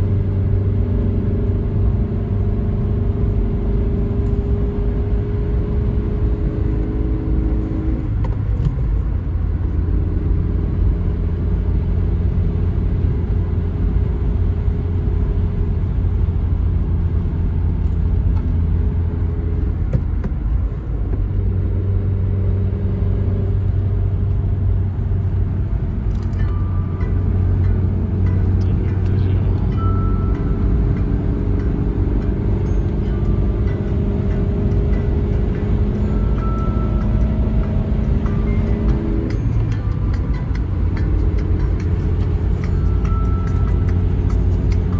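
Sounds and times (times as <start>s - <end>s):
car engine running: 0.0s - 44.9s
road noise: 0.0s - 44.9s.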